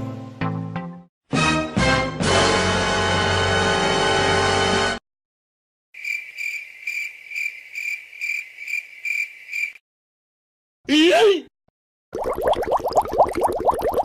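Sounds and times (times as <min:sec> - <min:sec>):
music clip: 0:00.0 - 0:05.0
cricket chirping: 0:06.0 - 0:09.8.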